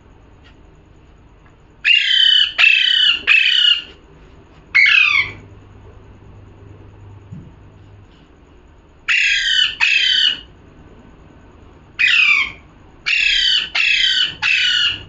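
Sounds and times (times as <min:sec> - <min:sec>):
parrot squawking: 0:01.8 - 0:03.9, 0:04.8 - 0:05.4, 0:09.1 - 0:10.5, 0:12.0 - 0:15.0.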